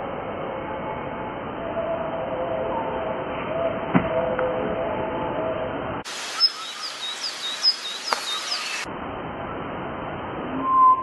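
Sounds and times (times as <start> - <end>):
outdoor background noise: 0.0 - 11.0
bird chirping: 6.1 - 8.9.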